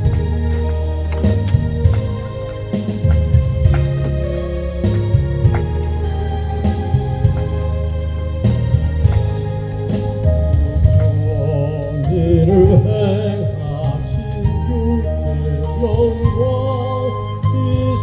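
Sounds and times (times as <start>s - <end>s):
keyboard accompaniment: 0.0s - 18.0s
person singing a hymn with vibrato: 0.0s - 18.0s.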